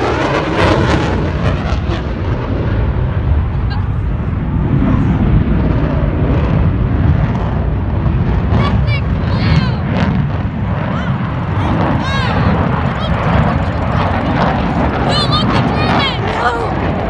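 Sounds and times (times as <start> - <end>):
jet engine crackling: 0.0 - 17.0
jet low rumble: 0.0 - 17.0.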